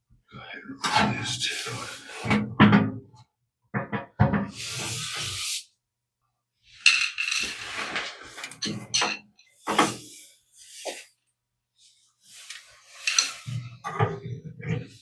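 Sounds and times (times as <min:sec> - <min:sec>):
metal scrape: 0:06.9 - 0:11.1, 0:12.3 - 0:15.0.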